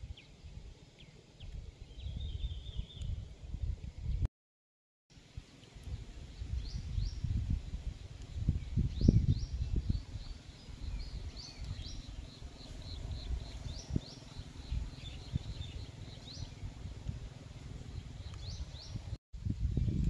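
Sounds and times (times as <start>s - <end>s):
small birds chirping: 0.0s - 4.3s, 5.2s - 20.0s
low outdoor rumble: 9.6s - 19.2s.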